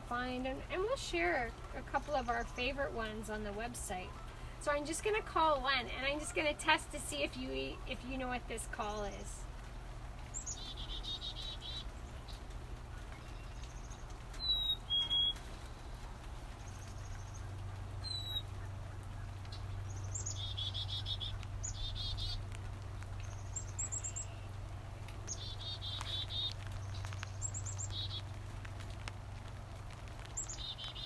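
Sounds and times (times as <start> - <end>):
chickadees calling: 0.0 - 9.5, 10.2 - 29.0, 30.2 - 31.0.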